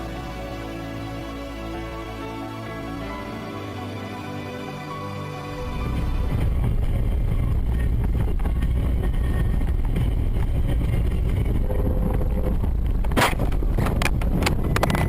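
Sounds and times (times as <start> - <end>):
car road and wind noise: 5.5 - 15.0.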